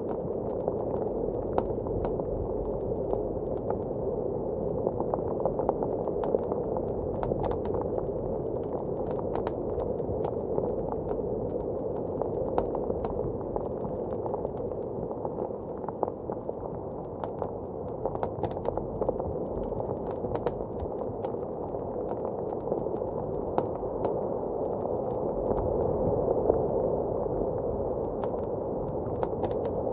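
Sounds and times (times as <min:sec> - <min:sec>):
wood fire crackling: 0:05.2 - 0:25.8.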